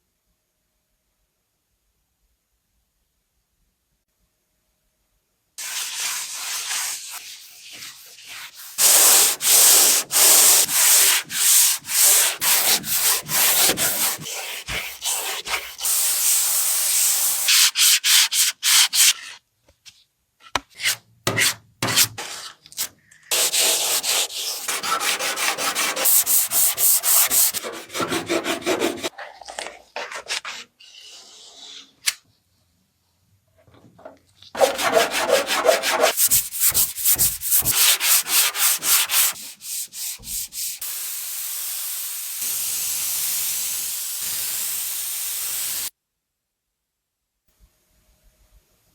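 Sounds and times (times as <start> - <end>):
hand sanding strokes: 5.6 - 19.3, 23.3 - 29.1, 34.6 - 40.9.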